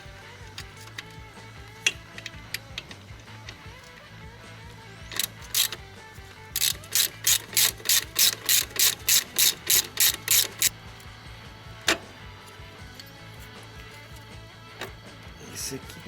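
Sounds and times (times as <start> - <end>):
ratchet wrench clicking: 0.4 - 4.2, 5.0 - 10.8.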